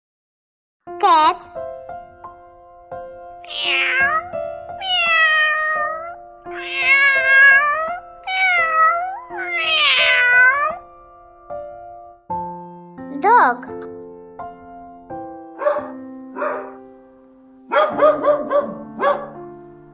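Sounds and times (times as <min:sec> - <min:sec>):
soft background music: 0:00.9 - 0:19.9
cat meowing: 0:03.4 - 0:10.9.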